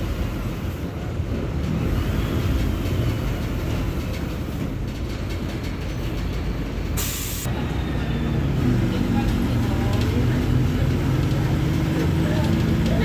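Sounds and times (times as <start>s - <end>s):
bus diesel engine rumbling: 0.0s - 13.0s
short sharp hiss: 7.0s - 7.5s.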